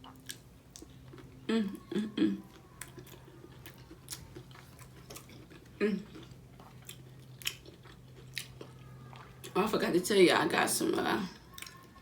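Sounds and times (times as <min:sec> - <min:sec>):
faint steady hum: 0:00.0 - 0:12.0
wet chewing and mouth smacks: 0:02.5 - 0:09.6.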